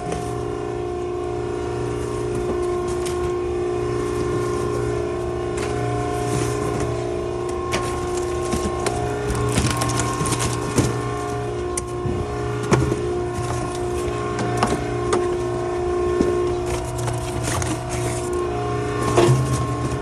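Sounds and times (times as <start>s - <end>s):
hydraulic unit humming: 0.0s - 20.0s
cracks and snaps of crushing: 7.5s - 11.1s.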